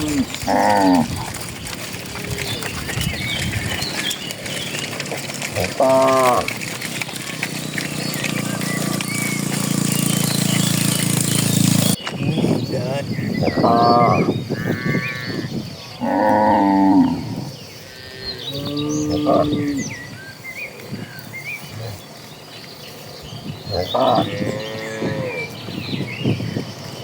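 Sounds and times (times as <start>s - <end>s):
cattle mooing: 0.0s - 12.0s, 13.4s - 20.1s, 23.7s - 25.7s
small birds chirping: 0.0s - 27.0s.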